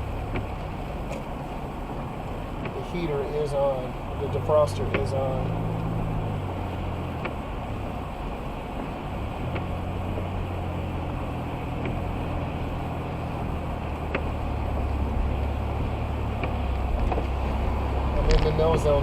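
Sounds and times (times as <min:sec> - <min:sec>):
engine and tyre drone: 0:00.0 - 0:19.0.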